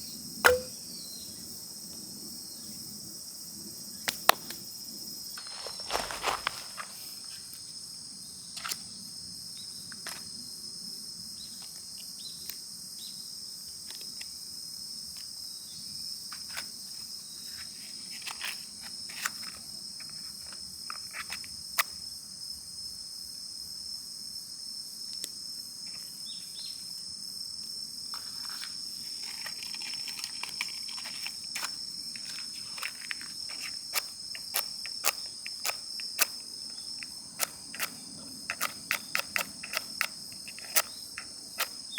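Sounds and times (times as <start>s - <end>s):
crickets shrilling: 0.0s - 23.3s, 25.4s - 41.9s
rustling hiss: 4.4s - 7.7s.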